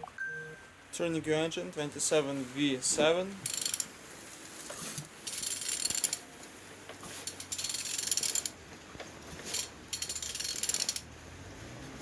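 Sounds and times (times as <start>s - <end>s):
ratchet wrench clicking: 3.5s - 3.9s, 5.3s - 6.2s, 7.3s - 8.6s, 9.5s - 11.0s.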